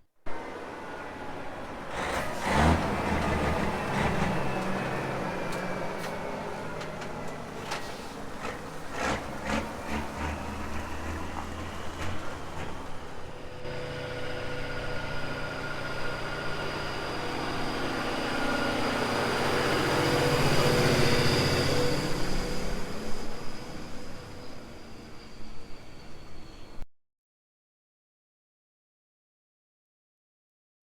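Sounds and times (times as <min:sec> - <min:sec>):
diesel truck engine running: 0:00.3 - 0:24.4.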